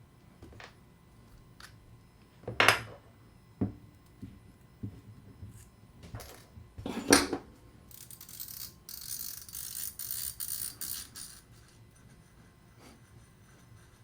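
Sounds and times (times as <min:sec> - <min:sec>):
metal parts clinking and rattling: 0:07.9 - 0:11.6.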